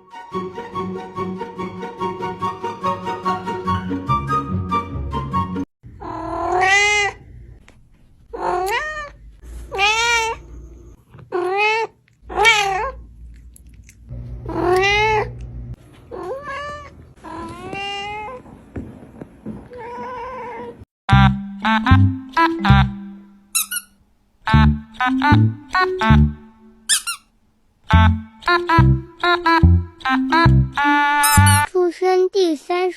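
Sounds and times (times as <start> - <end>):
cat meowing: 6.0 - 7.2, 8.4 - 10.4, 11.3 - 13.0, 14.5 - 15.3.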